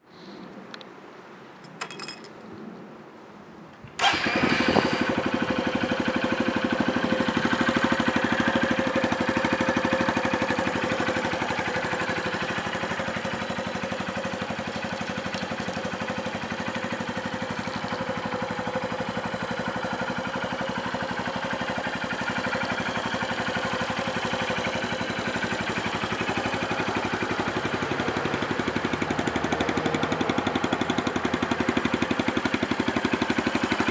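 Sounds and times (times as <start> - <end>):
motorcycle engine idling: 4.0 - 33.9.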